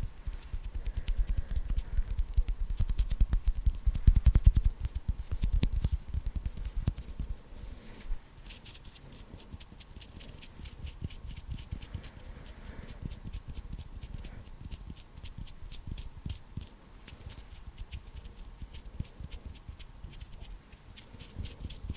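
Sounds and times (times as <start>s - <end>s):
fingers fluttering crackle: 0.0s - 7.4s
hands patting and tapping: 0.0s - 7.4s, 13.0s - 21.9s.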